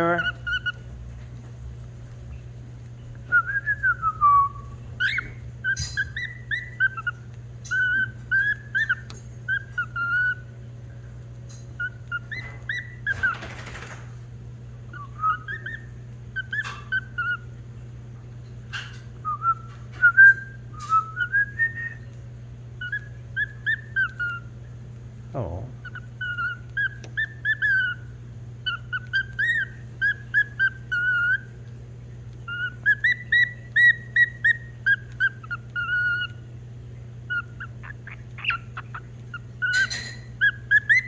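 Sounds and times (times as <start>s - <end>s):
cockatiel whistling: 0.0s - 0.9s, 3.1s - 10.5s, 11.8s - 13.7s, 14.9s - 17.5s, 19.2s - 22.2s, 22.8s - 24.5s, 25.8s - 31.6s, 32.4s - 36.5s, 37.2s - 41.0s
steady low hum: 0.0s - 41.0s.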